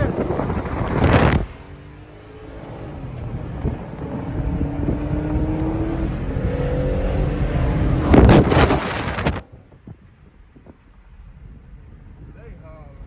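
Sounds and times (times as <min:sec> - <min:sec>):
car engine accelerating hard: 0:00.0 - 0:09.4
wind noise: 0:00.0 - 0:13.0
loud rush: 0:02.3 - 0:09.4.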